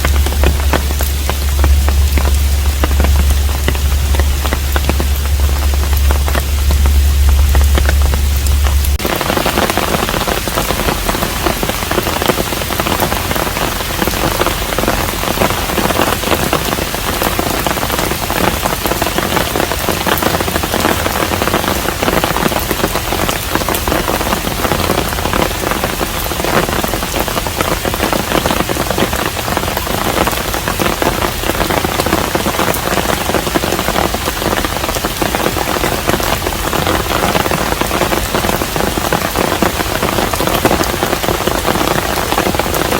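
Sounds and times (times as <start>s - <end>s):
low hum: 0.0s - 18.6s
rain pattering: 0.0s - 42.9s.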